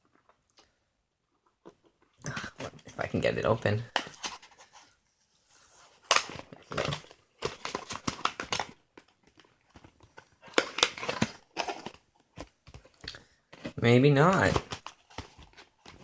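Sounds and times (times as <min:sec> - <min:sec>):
packaging crinkling and scraping: 0:03.9 - 0:16.0.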